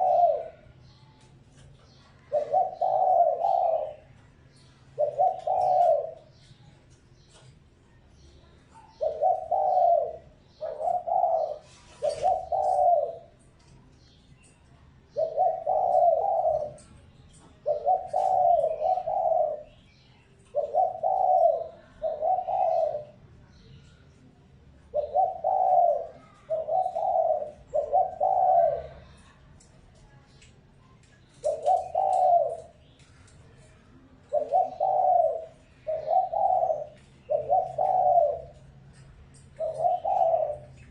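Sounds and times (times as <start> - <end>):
dove cooing: 0.0 - 0.8, 1.9 - 4.2, 4.9 - 6.6, 8.7 - 13.5, 15.1 - 19.8, 20.4 - 23.3, 24.9 - 29.4, 31.3 - 33.0, 33.6 - 40.9.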